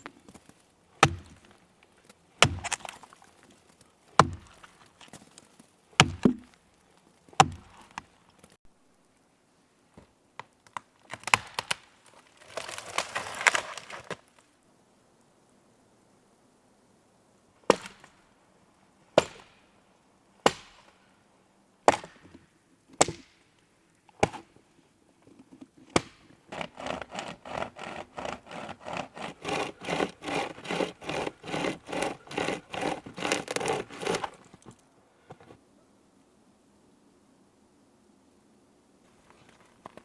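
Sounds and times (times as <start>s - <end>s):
axe chopping dry wood: 1.0s - 1.6s, 2.4s - 3.1s, 4.1s - 5.2s, 6.0s - 6.6s, 7.4s - 8.1s, 19.2s - 19.6s, 20.4s - 20.9s, 21.9s - 22.3s, 23.0s - 23.4s, 24.2s - 24.5s, 25.9s - 34.6s
saw cutting wood: 2.4s - 3.0s, 4.2s - 4.6s, 26.5s - 34.6s.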